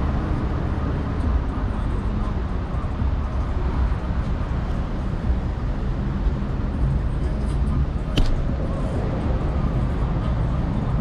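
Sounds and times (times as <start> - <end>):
city traffic noise: 0.0 - 11.0
low wind rumble: 0.0 - 11.0
sharp click: 8.1 - 8.4.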